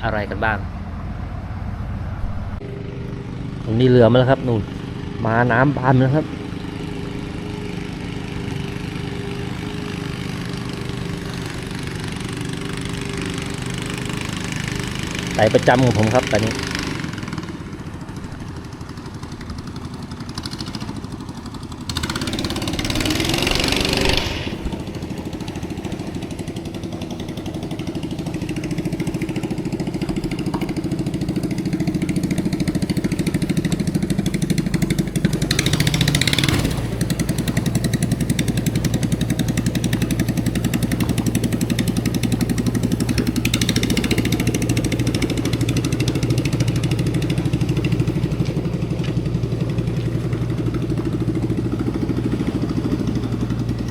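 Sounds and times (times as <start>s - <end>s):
boat engine running: 0.0s - 53.9s
rushes of hiss: 22.2s - 27.3s.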